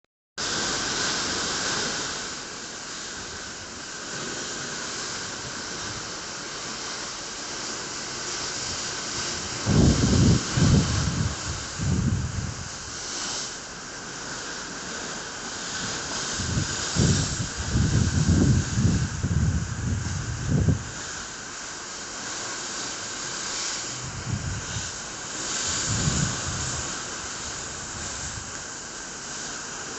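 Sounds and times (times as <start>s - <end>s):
rain hissing: 0.4s - 29.9s
stormy sea: 0.4s - 29.9s
wind buffeting the microphone: 8.1s - 13.4s, 15.7s - 21.4s, 23.4s - 29.9s.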